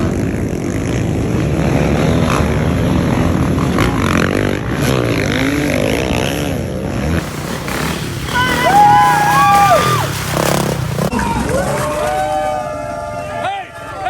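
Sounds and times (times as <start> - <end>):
dirt bike engine revving: 0.0 - 12.2
high sliding whistle-like call: 7.7 - 10.7.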